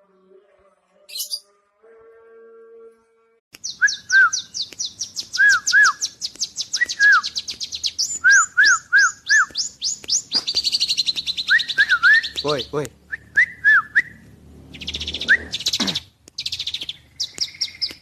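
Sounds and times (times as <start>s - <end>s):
small birds chirping: 1.1s - 1.4s, 3.5s - 18.0s.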